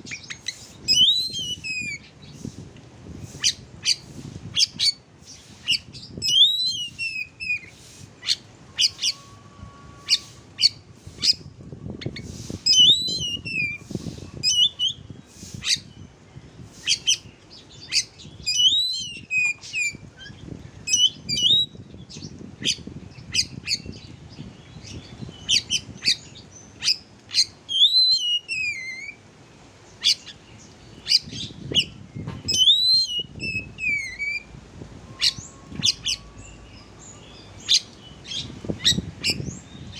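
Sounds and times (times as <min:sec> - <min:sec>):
bird whistled phrase: 0:32.5 - 0:34.5.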